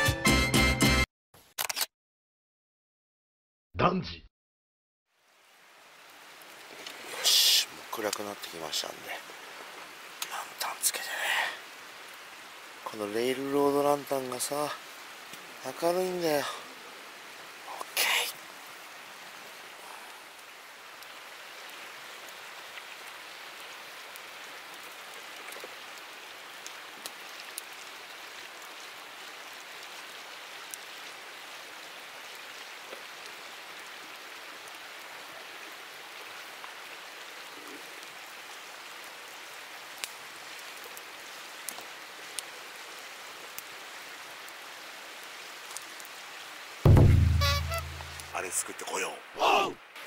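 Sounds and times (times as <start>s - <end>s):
campfire flames hissing: 5.2s - 46.9s
fire crackling and popping: 15.2s - 15.5s, 23.9s - 28.0s, 39.9s - 43.7s, 45.6s - 46.2s.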